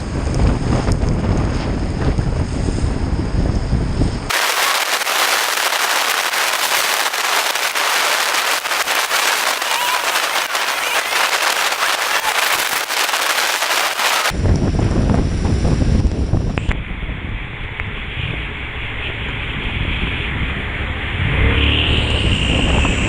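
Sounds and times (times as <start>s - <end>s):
rain pelting microphone: 4.3s - 14.3s.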